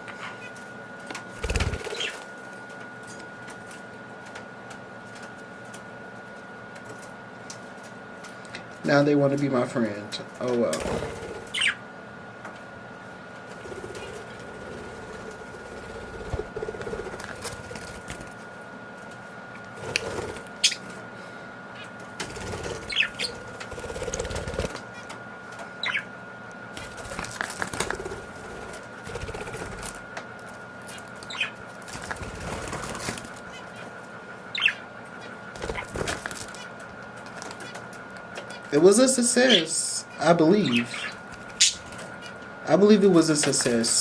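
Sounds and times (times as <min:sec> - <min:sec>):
budgies fluttering wings: 0:01.3 - 0:02.4, 0:10.4 - 0:11.8, 0:13.5 - 0:18.4, 0:19.7 - 0:21.0, 0:22.2 - 0:24.8, 0:25.8 - 0:26.0, 0:26.8 - 0:30.0, 0:30.9 - 0:33.9, 0:34.5 - 0:36.7, 0:38.8 - 0:44.0.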